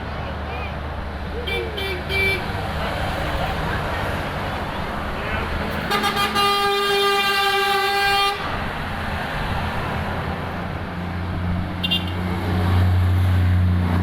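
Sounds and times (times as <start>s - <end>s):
diesel engine drone: 0.0s - 14.0s
trucks driving past: 0.0s - 14.0s
truck horn blaring: 1.4s - 2.6s, 5.4s - 8.5s, 11.8s - 12.3s.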